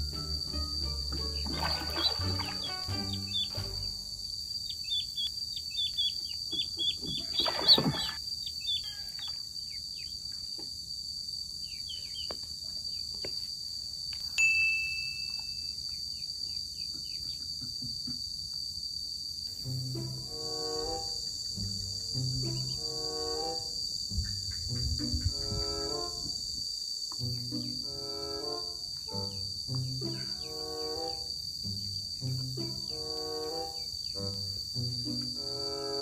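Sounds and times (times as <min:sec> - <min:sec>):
high insect drone: 0:00.0 - 0:14.4, 0:15.1 - 0:36.0
ducklings peeping: 0:01.3 - 0:03.8, 0:04.6 - 0:09.4, 0:16.2 - 0:17.5, 0:22.5 - 0:22.8.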